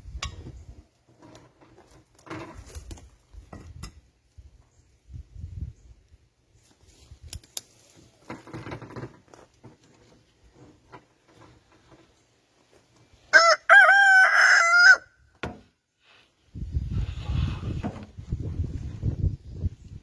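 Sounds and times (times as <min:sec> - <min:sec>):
rustling: 0:00.6 - 0:05.0, 0:06.6 - 0:13.2
rooster crowing: 0:13.3 - 0:15.2.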